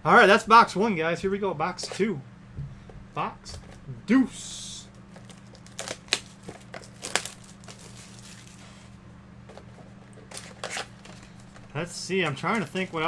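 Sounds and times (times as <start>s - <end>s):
packaging crinkling and tearing: 4.9s - 9.0s, 9.6s - 13.0s.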